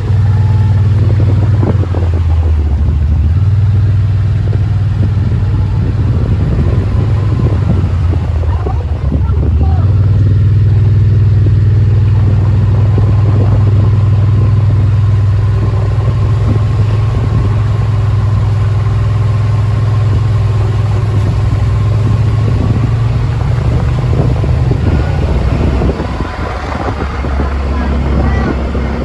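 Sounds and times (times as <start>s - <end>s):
engine low drone: 0.0s - 29.0s.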